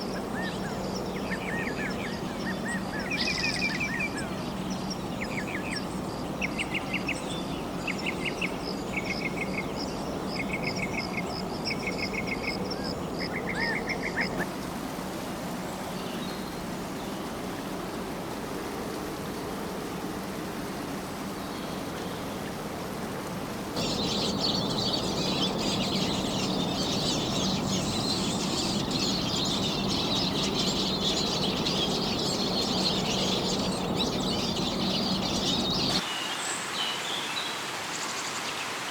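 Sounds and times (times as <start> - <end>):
steady background hiss: 0.0 - 38.9
chorus of high chirping calls: 23.8 - 36.0.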